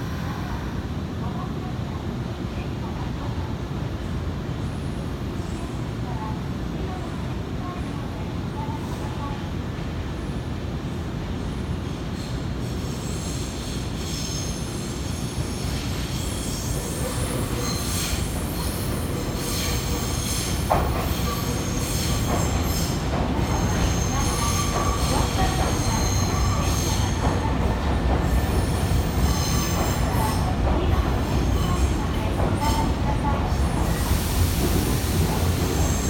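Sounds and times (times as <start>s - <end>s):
train rumble: 0.0s - 36.0s
train wheels squealing: 11.9s - 30.5s, 31.2s - 32.0s.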